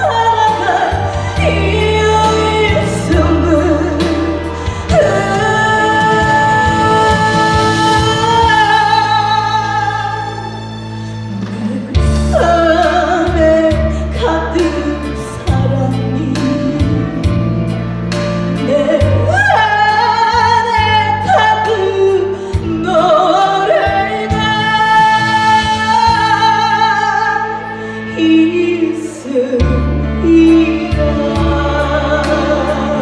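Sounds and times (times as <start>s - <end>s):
person singing: 0.0s - 10.6s, 18.6s - 33.0s.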